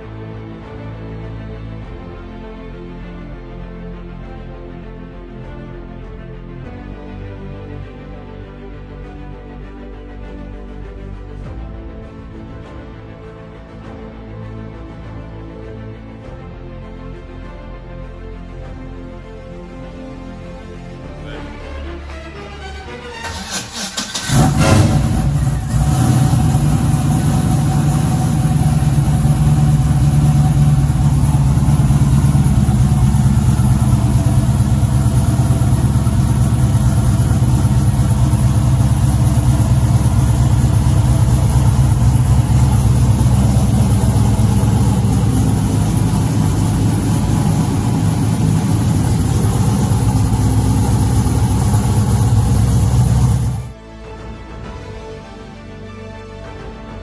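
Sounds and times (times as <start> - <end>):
car engine idling: 23.2 - 53.7.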